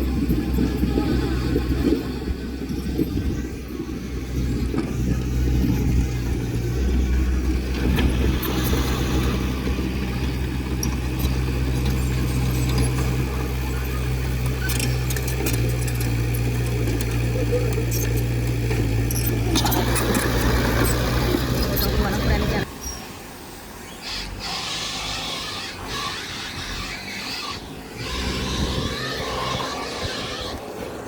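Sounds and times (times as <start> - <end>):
heavy diesel engine running: 0.0 - 27.0, 27.7 - 31.0
sharp metallic clicks: 14.1 - 21.9.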